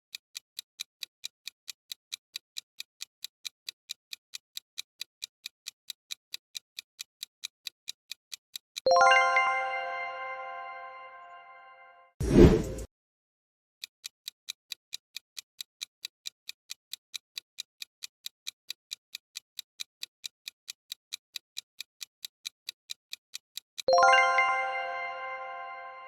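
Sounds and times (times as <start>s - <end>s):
clock-like timer ticks: 0.1s - 9.5s, 13.8s - 26.0s
bell-like chime: 8.9s - 12.1s, 23.9s - 26.0s.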